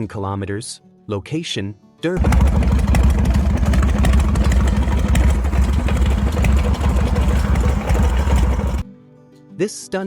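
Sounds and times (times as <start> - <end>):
motorcycle engine running: 2.2 - 8.8.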